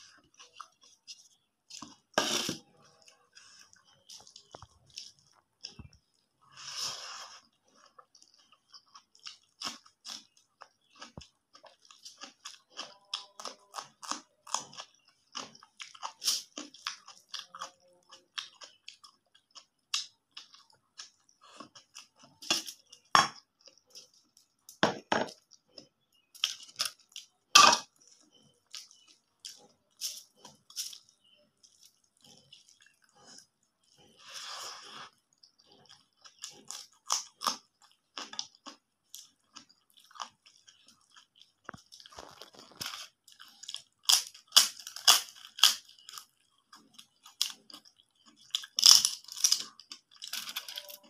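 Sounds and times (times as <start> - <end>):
person chewing food: 0.0 - 51.0
crisp crunches: 41.6 - 46.2.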